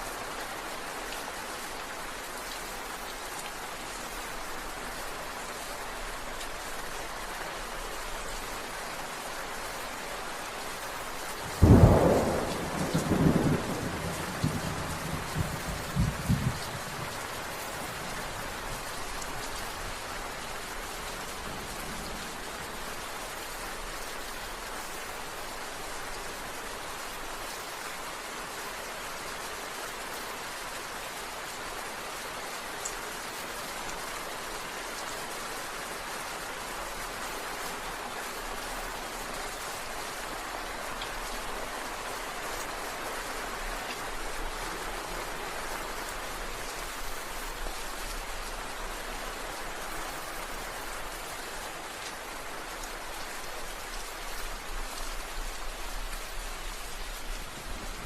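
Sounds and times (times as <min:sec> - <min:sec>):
steady rain falling: 0:00.0 - 0:58.0
thunderclap cracking and rumbling: 0:11.6 - 0:16.7.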